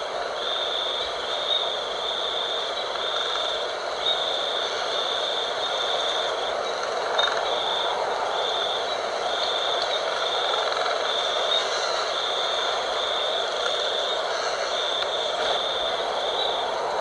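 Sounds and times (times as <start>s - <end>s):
wind blowing: 0.0s - 17.0s.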